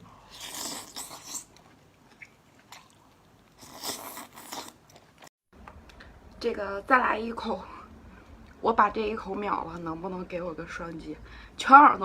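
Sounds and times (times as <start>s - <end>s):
person biting and chewing food: 0.1s - 6.0s.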